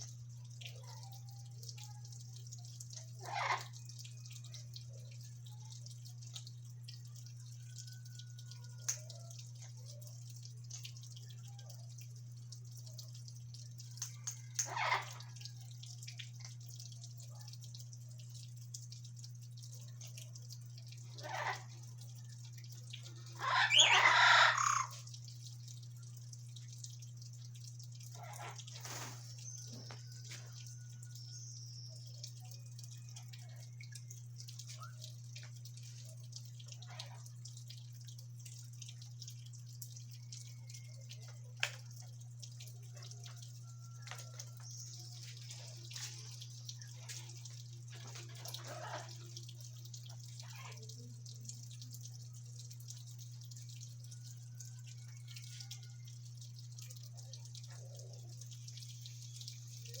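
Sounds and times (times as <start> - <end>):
parrot chirps and whistles: 23.4 - 25.0.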